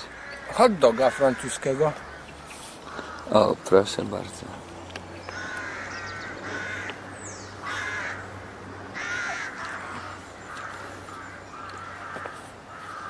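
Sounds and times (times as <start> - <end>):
birds harsh calls: 0.0 - 13.0.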